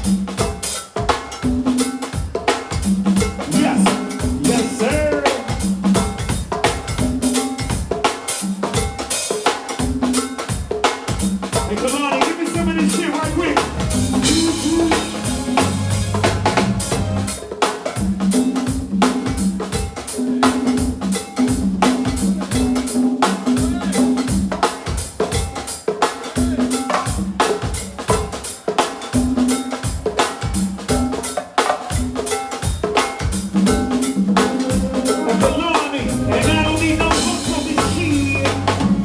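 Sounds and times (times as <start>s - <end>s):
drum kit beating: 0.0s - 39.0s
repeating bass line: 13.3s - 17.4s, 34.8s - 39.0s.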